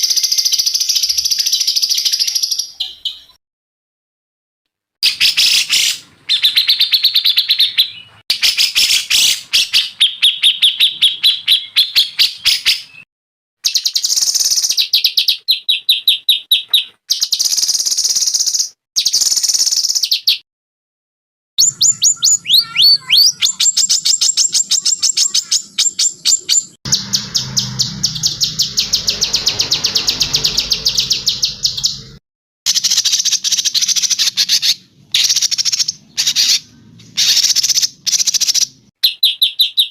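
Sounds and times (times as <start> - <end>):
songbirds singing in rattling trills: 21.6 - 39.9.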